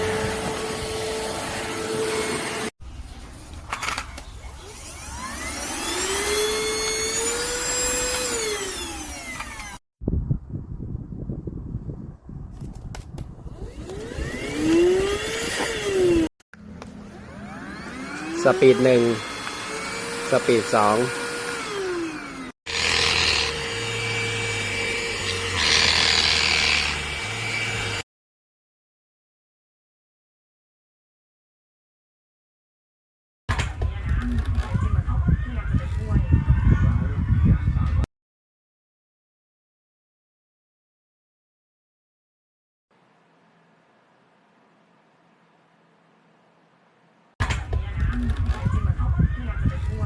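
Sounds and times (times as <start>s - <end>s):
vacuum cleaner motor whine: 0.0s - 2.7s, 4.7s - 9.8s, 13.5s - 16.3s, 17.1s - 26.0s.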